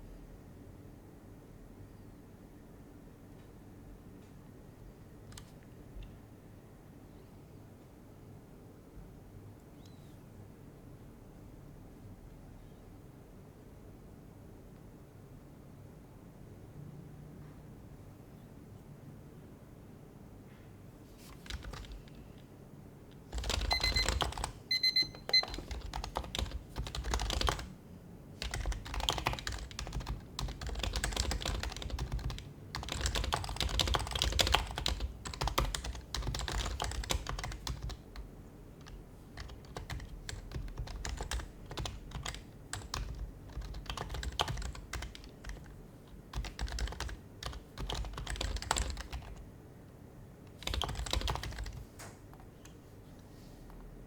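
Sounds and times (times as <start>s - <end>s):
keyboard typing: 5.2s - 5.6s, 21.3s - 22.2s, 23.3s - 27.7s, 28.4s - 49.4s, 50.5s - 52.8s.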